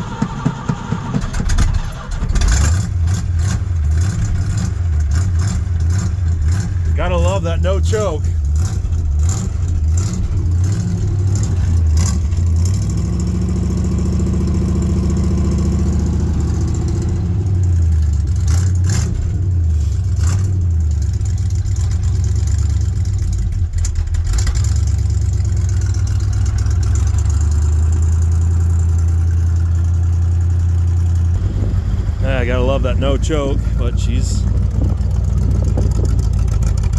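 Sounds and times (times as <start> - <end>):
engine revving unevenly: 2.4 - 17.6, 31.3 - 36.9.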